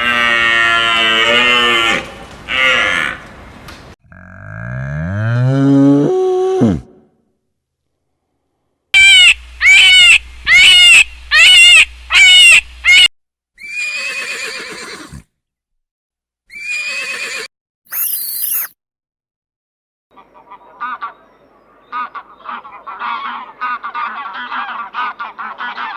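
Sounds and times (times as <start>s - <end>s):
horse whinnying: 13.6s - 15.2s, 16.5s - 18.7s
brief shrill sound: 17.9s - 18.8s.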